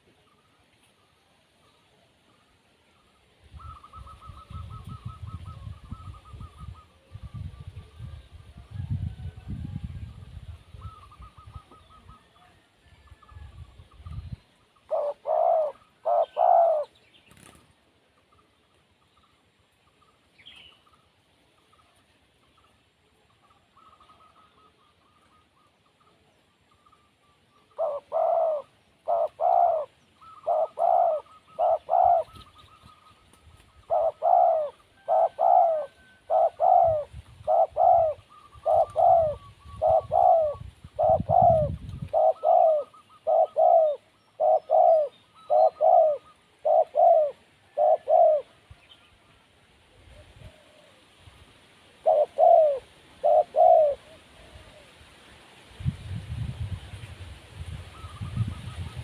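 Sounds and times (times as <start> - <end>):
dove cooing: 14.9 - 17.6, 27.7 - 48.8, 50.0 - 51.0, 52.0 - 55.0.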